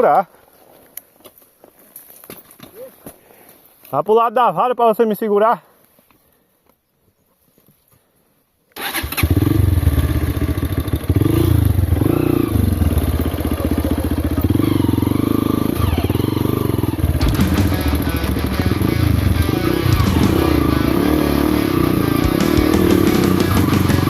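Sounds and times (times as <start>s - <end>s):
motorcycle engine revving: 8.8s - 24.0s.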